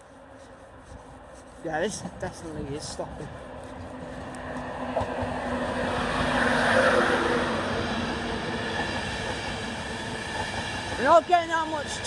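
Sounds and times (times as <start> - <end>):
electric train slowing to stop: 4.1 - 12.0.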